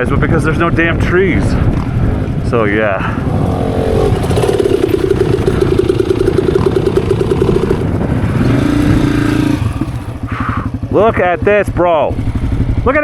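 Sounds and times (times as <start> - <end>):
dirt bike engine running: 0.9 - 13.0
rough low rumble: 1.4 - 11.7.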